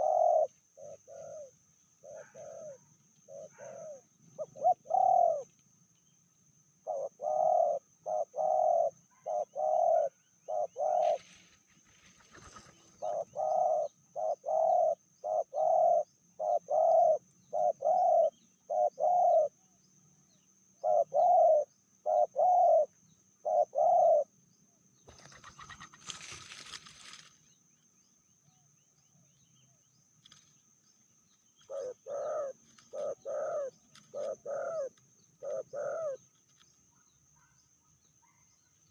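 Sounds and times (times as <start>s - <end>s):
dove cooing: 0.0s - 5.5s, 6.8s - 11.3s, 12.3s - 19.6s, 20.8s - 24.3s, 31.6s - 36.2s.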